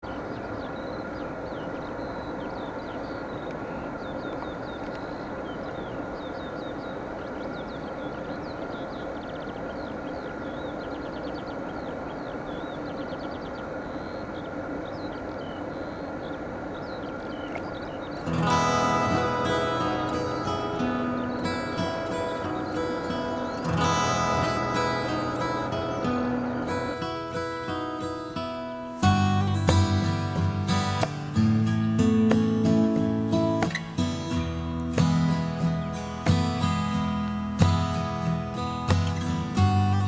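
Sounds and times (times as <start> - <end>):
small birds chirping: 0.0 - 40.0
acoustic guitar music: 17.4 - 40.0.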